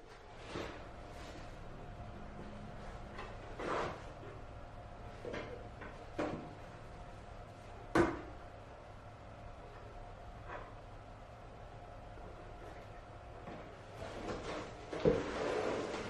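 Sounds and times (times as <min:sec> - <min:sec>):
floor cutter clunks and knocks: 0:05.2 - 0:06.6, 0:07.9 - 0:08.3.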